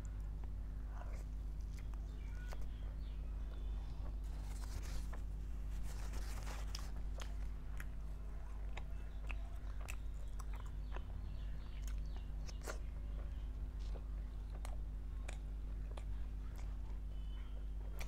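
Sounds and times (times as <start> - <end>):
person chewing food: 0.0 - 18.0
steady low hum: 0.0 - 18.0.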